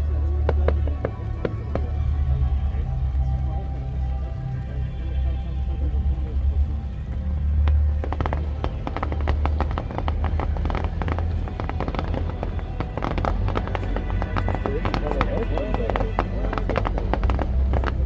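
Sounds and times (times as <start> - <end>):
fireworks crackling: 0.0 - 18.0
fireworks booming: 7.6 - 18.0.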